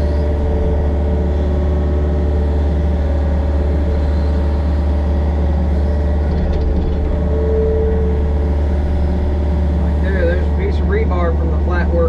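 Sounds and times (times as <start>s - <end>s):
excavator diesel engine hum: 0.0s - 12.0s.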